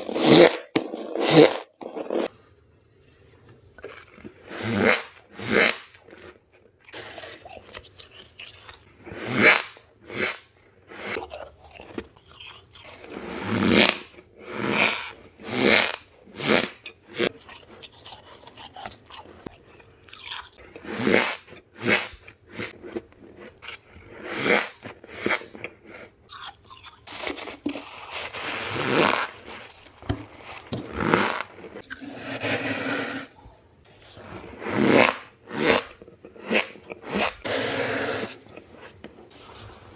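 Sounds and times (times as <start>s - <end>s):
frost being bitten and chewed: 3.5s - 13.2s, 15.1s - 32.0s.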